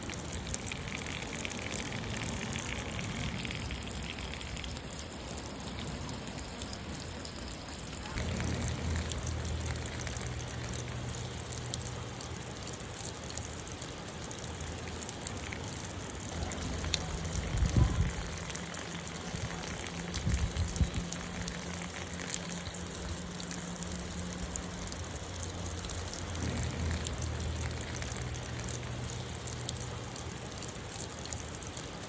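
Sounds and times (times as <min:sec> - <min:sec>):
light rain patter: 0:00.0 - 0:32.0
low hum: 0:19.4 - 0:30.5.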